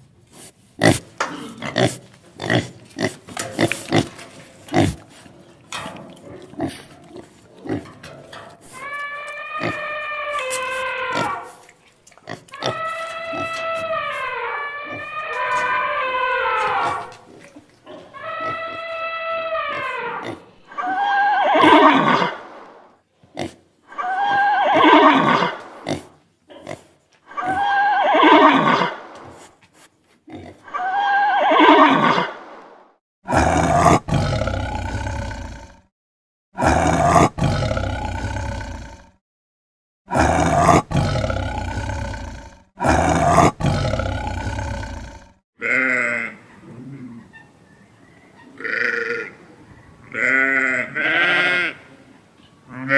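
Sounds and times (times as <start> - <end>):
loud animal call: 8.7 - 11.6, 12.5 - 17.2, 18.1 - 22.5, 23.9 - 25.7, 27.3 - 29.0, 30.6 - 32.4, 48.4 - 52.0
rougher animal call: 8.7 - 11.6, 18.0 - 22.4.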